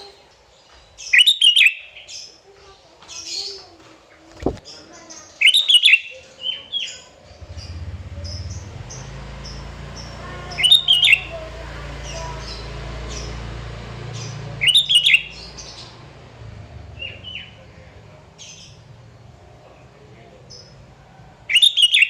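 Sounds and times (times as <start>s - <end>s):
bird singing chirped phrases: 0.0s - 22.0s
steady low hum: 7.2s - 21.5s
short high bird chirps: 9.0s - 11.3s, 14.2s - 15.9s.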